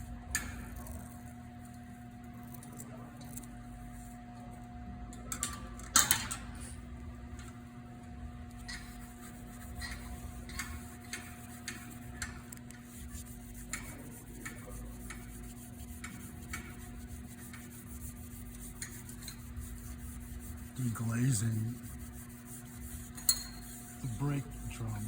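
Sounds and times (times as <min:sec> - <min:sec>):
abrasive pad scrubbing brake drum: 0:08.7 - 0:25.0.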